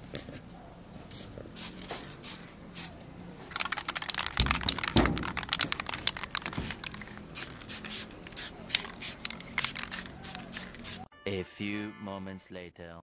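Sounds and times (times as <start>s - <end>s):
aerosol spray hissing: 1.6s - 2.9s, 7.2s - 11.1s
crackling and clicking: 3.4s - 10.8s.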